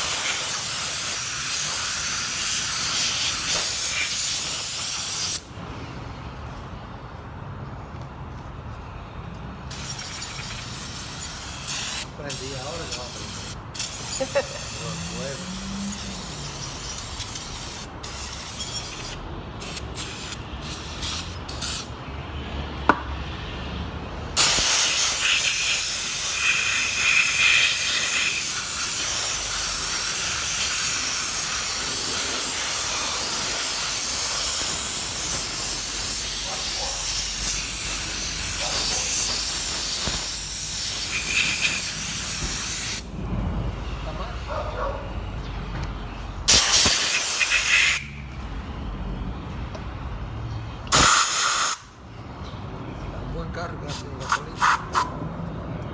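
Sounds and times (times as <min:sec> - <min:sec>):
pressurised spray hissing: 0:09.7 - 0:21.9, 0:24.4 - 0:43.0, 0:46.5 - 0:48.1.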